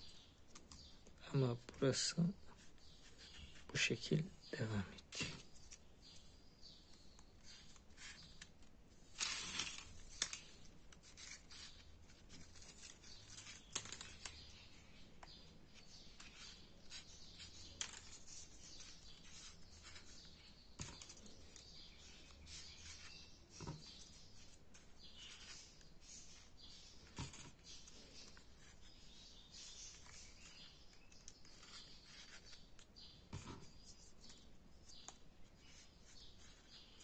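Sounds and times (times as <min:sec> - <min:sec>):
paper crinkle: 0:07.2 - 0:14.9
paper rustling and rubbing: 0:07.4 - 0:15.0, 0:15.7 - 0:37.0.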